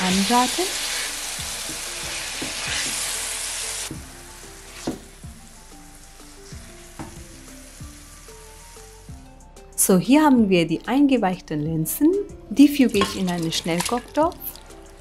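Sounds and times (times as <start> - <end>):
tomatoes sizzling in pan: 0.0 - 9.3
soft background music: 0.0 - 15.0
wooden spoon stirring: 12.9 - 14.6.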